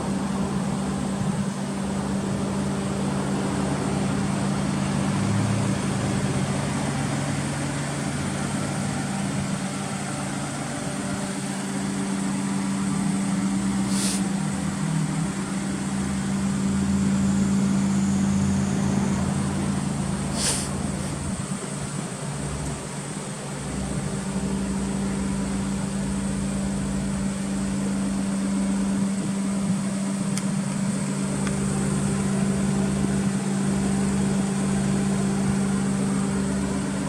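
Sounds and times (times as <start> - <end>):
car engine idling: 0.0 - 37.0
short hisses: 13.8 - 14.4, 20.3 - 21.2.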